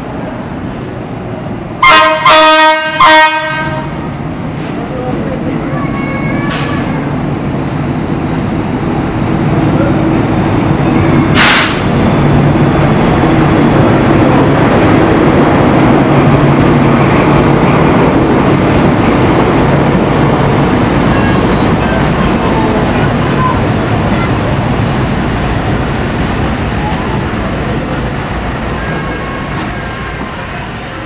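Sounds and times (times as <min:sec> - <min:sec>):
diesel locomotive engine humming: 0:00.0 - 0:31.0
passenger cars rolling over rails: 0:00.0 - 0:31.0
short hiss: 0:11.4 - 0:11.9.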